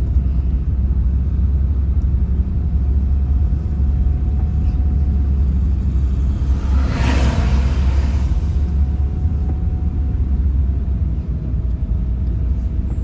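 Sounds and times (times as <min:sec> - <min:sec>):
engine and road noise rumble: 0:00.0 - 0:13.0
rush of noise: 0:04.5 - 0:10.2.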